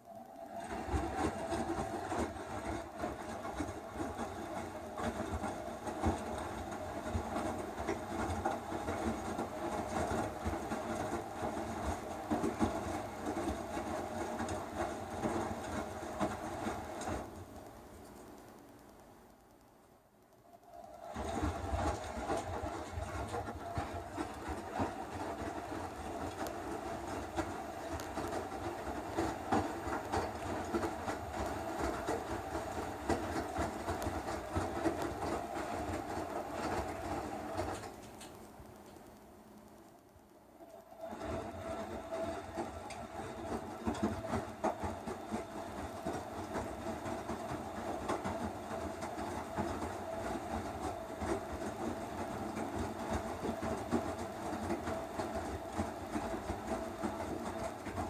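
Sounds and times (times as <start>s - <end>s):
washing machine motor hum: 0.0s - 58.0s.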